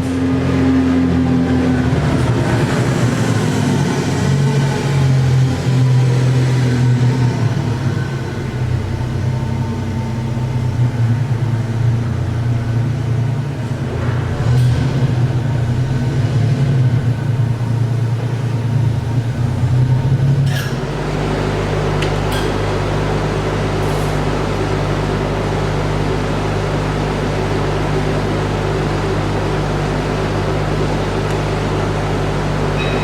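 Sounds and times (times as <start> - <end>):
machinery humming: 0.0 - 33.0.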